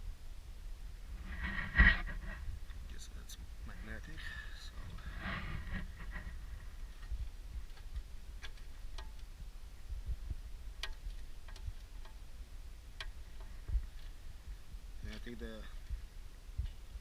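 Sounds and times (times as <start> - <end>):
low steady rumble: 0.0 - 17.0
metallic clicks and taps: 7.7 - 9.3, 10.8 - 12.2.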